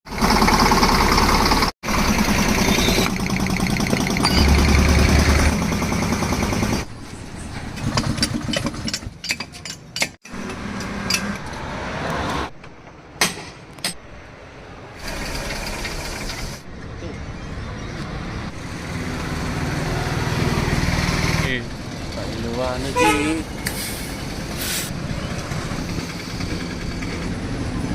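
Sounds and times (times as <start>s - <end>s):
tractor engine running: 0.1s - 11.2s
sharp knocks and clanks: 7.6s - 11.6s, 12.5s - 14.1s.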